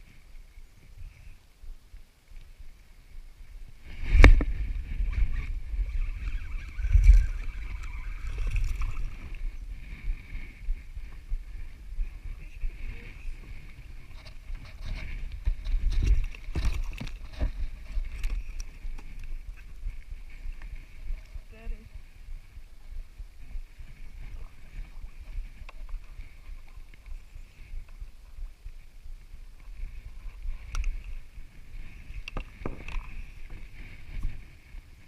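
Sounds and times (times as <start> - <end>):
water noise: 0.0 - 35.0
low rumbling: 2.7 - 34.6
knocks and bumps on a kayak: 32.1 - 34.4.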